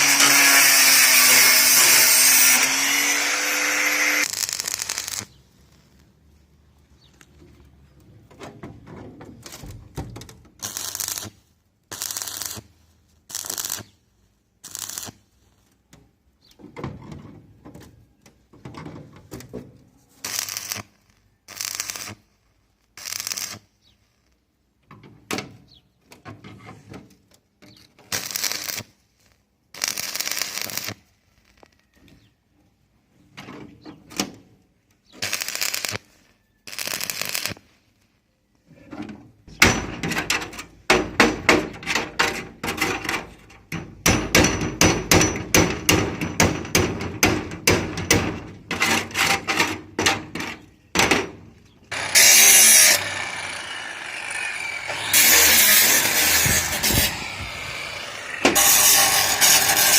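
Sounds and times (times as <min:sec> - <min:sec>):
harsh noise bursts: 0:51.9 - 0:59.9.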